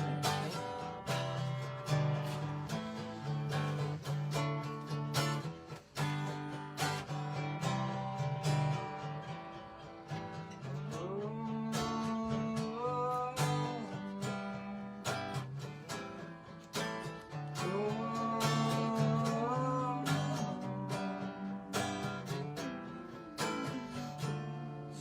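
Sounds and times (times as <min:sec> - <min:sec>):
acoustic guitar strumming chords: 0:00.0 - 0:25.0
person wordless singing: 0:10.4 - 0:16.4, 0:17.3 - 0:25.0.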